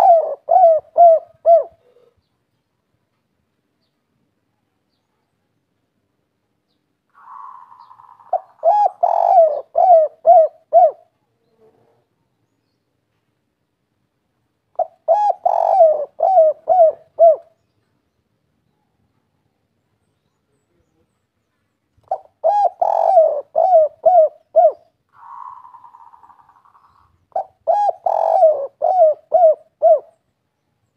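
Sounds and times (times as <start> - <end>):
dove cooing: 0.0 - 2.2, 7.1 - 12.0, 14.8 - 17.6, 22.0 - 30.2.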